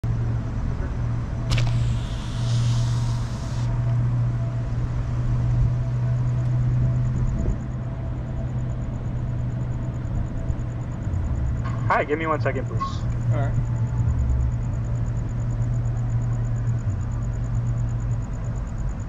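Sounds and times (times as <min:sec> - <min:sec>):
hiss: 0:01.5 - 0:03.7
sharp click: 0:01.5 - 0:03.7.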